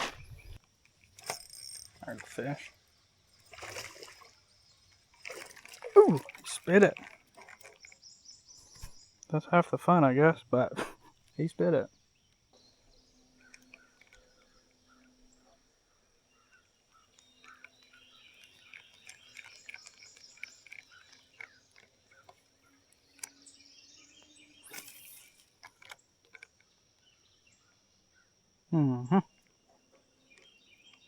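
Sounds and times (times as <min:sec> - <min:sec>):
creekside ambience: 0:00.0 - 0:31.0
bird chirps: 0:01.2 - 0:26.0.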